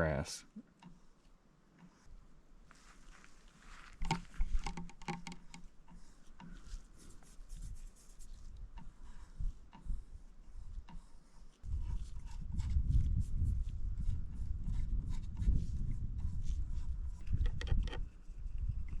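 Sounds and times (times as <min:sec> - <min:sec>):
paint brush scrubbing on panel: 0:06.0 - 0:09.5.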